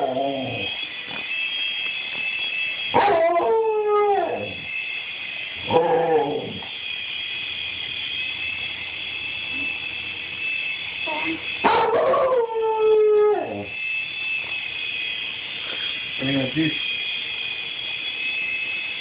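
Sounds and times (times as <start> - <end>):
dog barking and howling: 0.0 - 0.8, 2.9 - 4.6, 5.6 - 6.6, 11.1 - 13.7
toy helicopter motor whine: 0.0 - 19.0.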